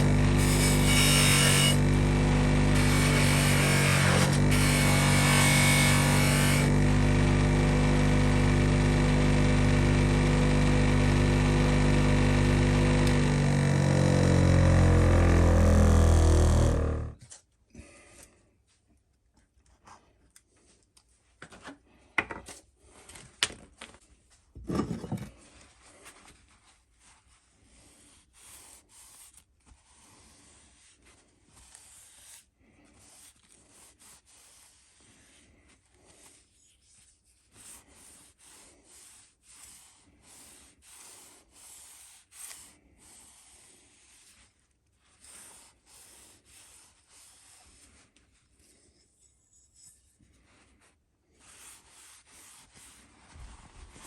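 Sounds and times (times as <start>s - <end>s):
loud scrape: 0.0s - 7.2s, 12.1s - 17.3s.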